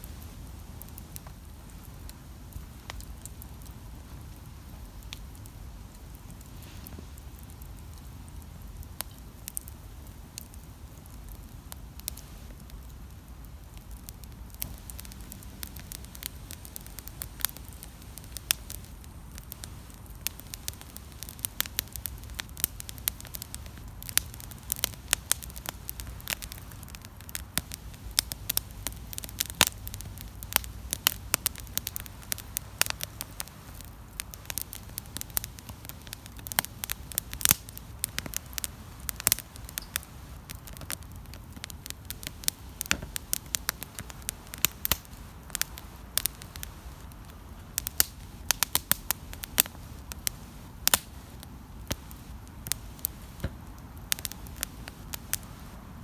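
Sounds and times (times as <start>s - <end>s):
campfire crackling and popping: 0.0s - 56.0s
low rumble of flames: 0.0s - 56.0s.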